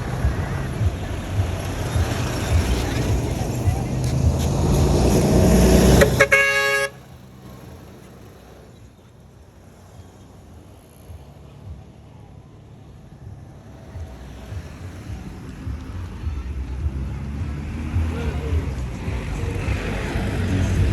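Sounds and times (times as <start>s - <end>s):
low street background: 0.0s - 20.9s
motor vehicle passing: 0.0s - 20.9s
car horn toot: 5.2s - 7.3s.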